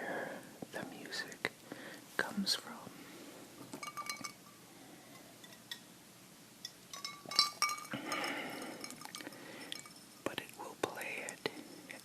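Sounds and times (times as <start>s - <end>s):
small hard objects clinking: 6.6s - 10.2s.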